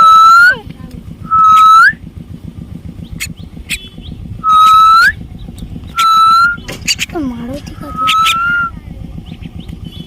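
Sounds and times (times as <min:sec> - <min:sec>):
bird whistled calls: 0:00.0 - 0:00.6, 0:01.2 - 0:02.0, 0:03.0 - 0:07.1, 0:07.8 - 0:10.0.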